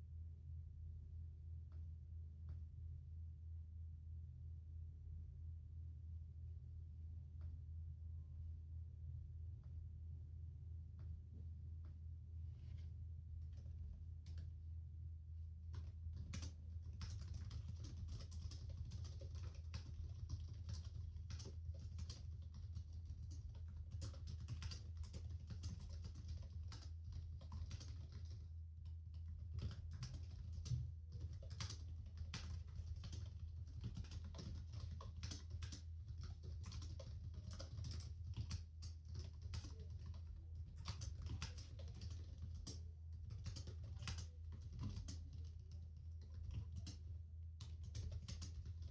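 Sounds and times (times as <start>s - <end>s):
low office hum: 0.2s - 48.9s
keyboard typing clicks: 15.8s - 28.4s, 29.2s - 48.9s.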